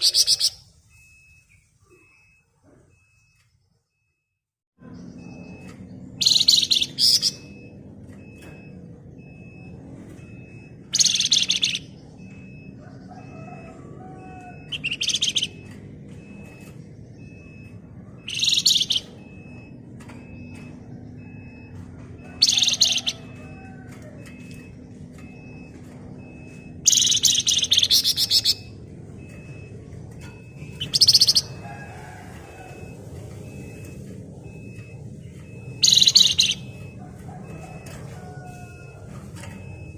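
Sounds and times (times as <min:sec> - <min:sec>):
songbird shrill rattling trills: 0:35.8 - 0:36.8.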